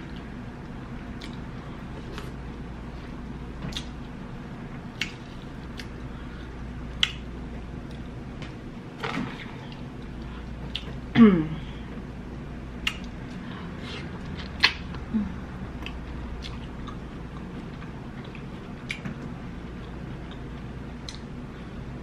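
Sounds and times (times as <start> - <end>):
person chewing shrimp: 4.9 - 6.1, 15.7 - 19.0.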